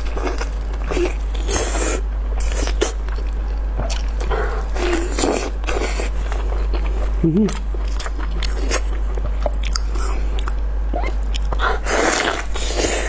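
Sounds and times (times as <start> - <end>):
small mouth clicks: 7.2 - 7.8.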